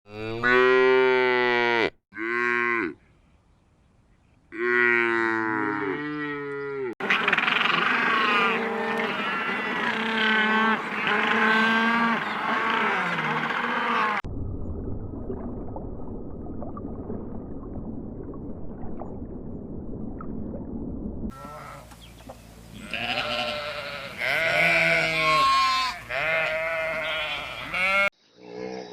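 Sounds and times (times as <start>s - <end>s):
cows mooing: 0.1s - 3.0s, 4.6s - 14.2s, 22.8s - 28.1s.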